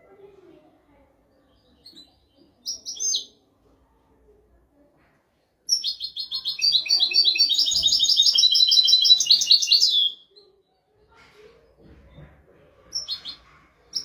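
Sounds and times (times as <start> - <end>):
finch chirping: 1.6 - 3.4, 5.7 - 10.2, 12.9 - 14.0
finch twittering: 5.7 - 10.2.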